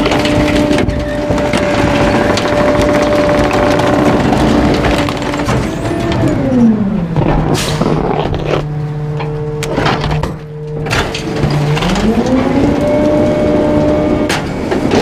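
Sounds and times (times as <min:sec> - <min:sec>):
sharp knocks and cracks: 0:00.0 - 0:06.2
diesel truck engine revving: 0:00.0 - 0:15.0.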